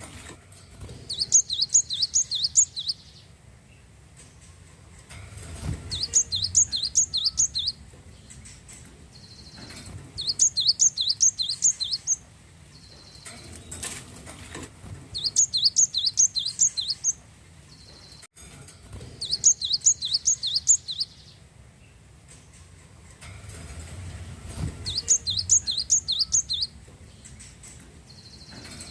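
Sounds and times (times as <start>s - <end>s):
bird chirping rapidly: 1.0s - 3.3s, 5.7s - 8.3s, 9.1s - 13.3s, 15.1s - 18.3s, 19.2s - 21.4s, 24.8s - 27.4s.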